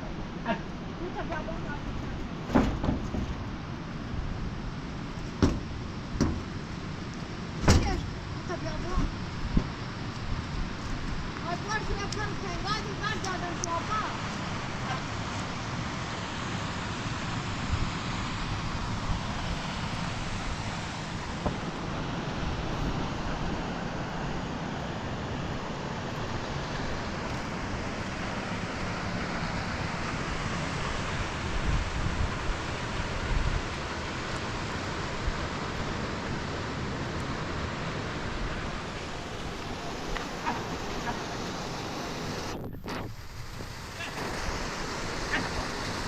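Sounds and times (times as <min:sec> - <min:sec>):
rain hissing: 0:26.4 - 0:46.0
wind buffeting microphone: 0:42.3 - 0:43.9.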